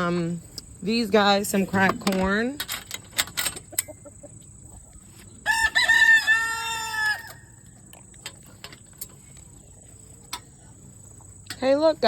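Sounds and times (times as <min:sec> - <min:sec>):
rooster crowing: 0:05.4 - 0:07.6.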